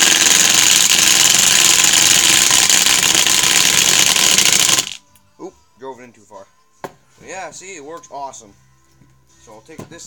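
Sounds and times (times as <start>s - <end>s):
impact driver hammering: 0.0s - 5.0s.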